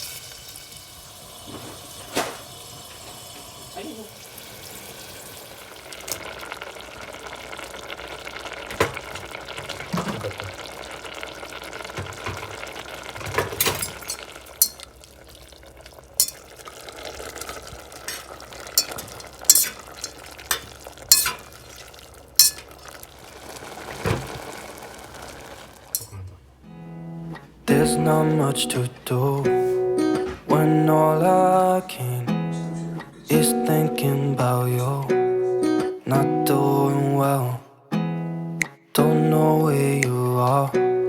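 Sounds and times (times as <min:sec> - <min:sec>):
food frying hiss: 0:00.0 - 0:26.2
dishes and cutlery clinking: 0:13.3 - 0:14.9, 0:16.2 - 0:16.4, 0:18.1 - 0:21.6, 0:22.4 - 0:22.8, 0:26.0 - 0:26.4.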